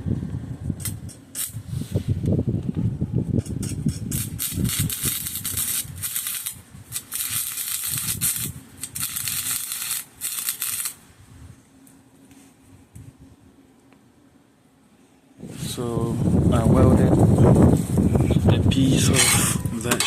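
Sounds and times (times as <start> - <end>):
welding arc crackling: 0.8 - 1.6, 3.4 - 11.0.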